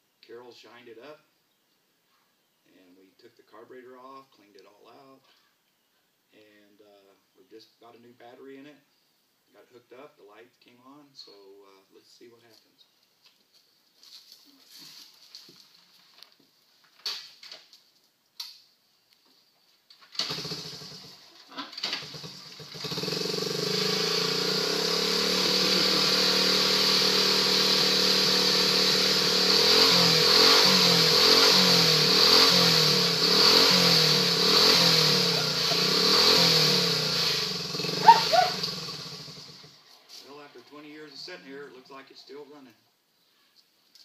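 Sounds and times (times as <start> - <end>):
motorcycle engine sputtering and running: 20.2 - 39.8.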